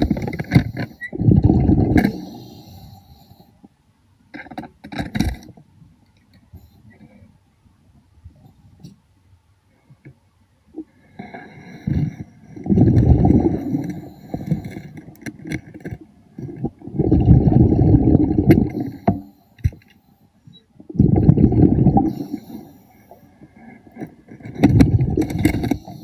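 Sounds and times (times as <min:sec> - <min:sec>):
underwater exhaled bubbles rumbling: 0:01.2 - 0:02.2, 0:12.6 - 0:14.6, 0:16.5 - 0:19.0, 0:20.9 - 0:22.4, 0:24.6 - 0:26.0.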